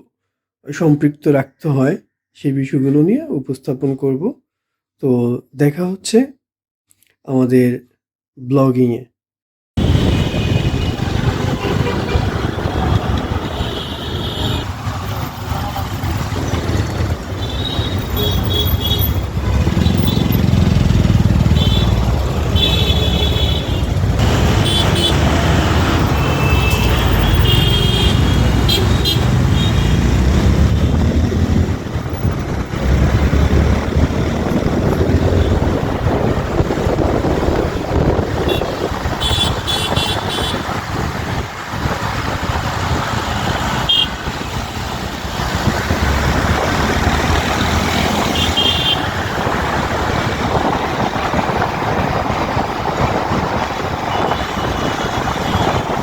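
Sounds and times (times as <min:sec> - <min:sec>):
vehicle horns tooting: 0:09.8 - 0:20.6, 0:21.4 - 0:30.6, 0:38.4 - 0:40.7, 0:43.4 - 0:44.7, 0:47.8 - 0:49.2, 0:54.1 - 0:56.0
road traffic rumble: 0:09.8 - 0:56.0.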